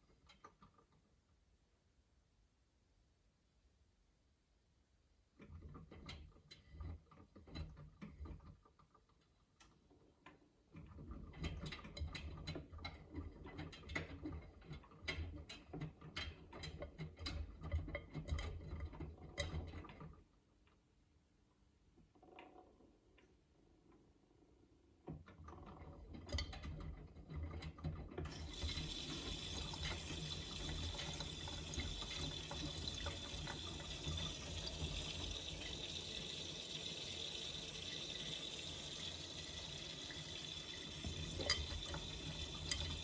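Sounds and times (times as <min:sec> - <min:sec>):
washing machine motor hum: 0:25.6 - 0:43.0.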